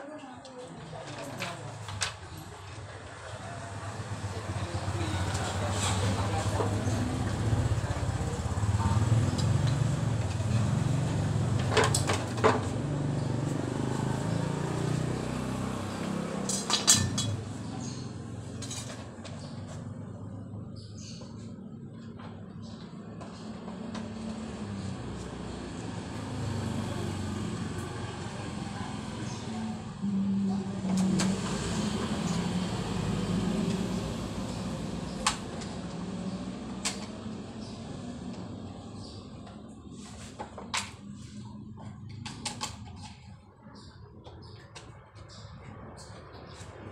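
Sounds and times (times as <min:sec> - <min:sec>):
small motorcycle engine idling: 0:02.5 - 0:39.9.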